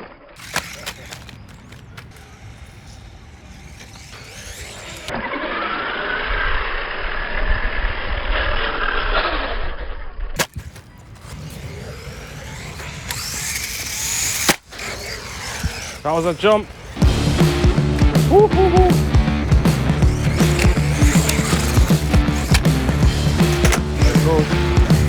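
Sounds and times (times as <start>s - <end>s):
tyres rumbling on ground: 0.4s - 5.1s, 10.4s - 25.0s
rc truck electric motor whining: 0.4s - 9.2s, 10.4s - 25.0s.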